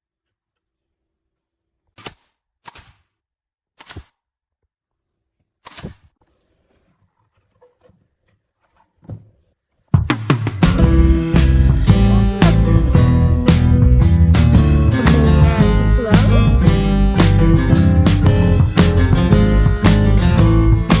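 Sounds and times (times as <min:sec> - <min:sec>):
music with guitar and drums: 0:10.0 - 0:21.0.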